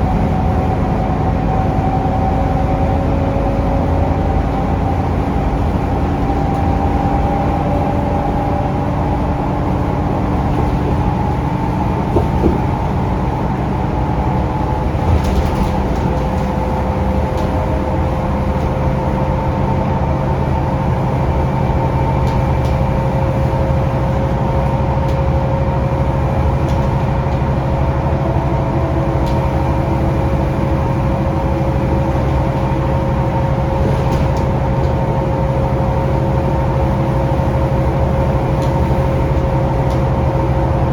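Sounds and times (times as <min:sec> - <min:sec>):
bus engine running: 0:00.0 - 0:40.9
road noise: 0:00.0 - 0:40.9
short knocks: 0:12.0 - 0:13.0.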